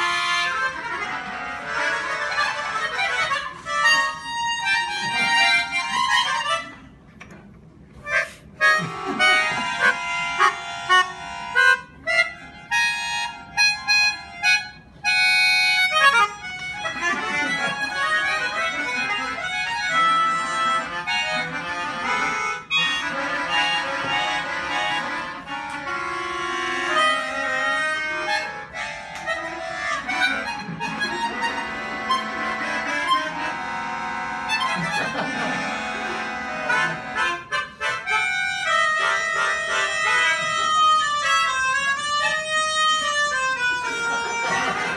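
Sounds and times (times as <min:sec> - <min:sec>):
reedy free-reed instrument music: 0:00.0 - 0:07.0, 0:07.9 - 0:44.9.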